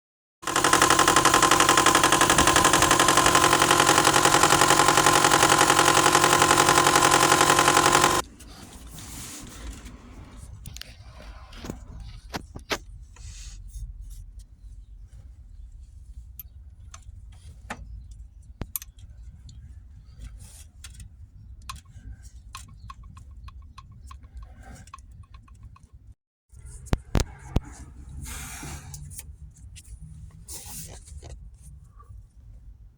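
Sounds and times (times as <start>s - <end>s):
engine running with whine and rattle: 0.4s - 8.3s
scattered clicks: 0.5s - 8.2s.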